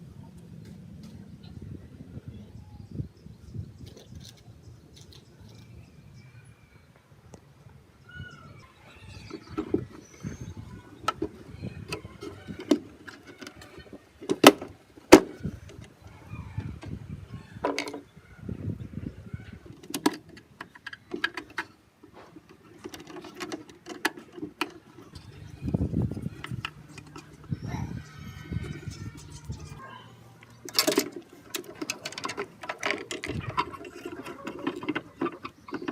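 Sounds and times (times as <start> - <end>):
metal parts and tools clicking: 22.4 - 27.5, 30.4 - 35.9.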